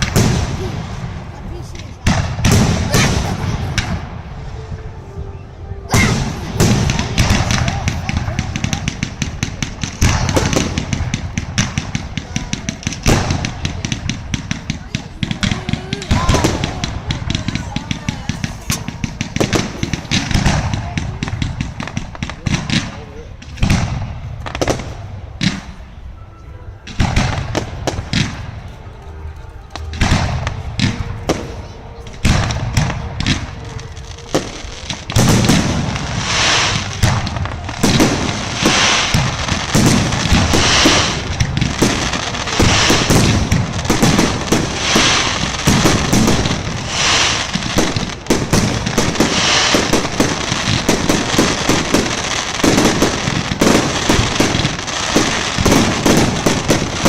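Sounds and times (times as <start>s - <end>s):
fireworks bangs and crackling: 0.0s - 26.2s, 26.8s - 57.0s.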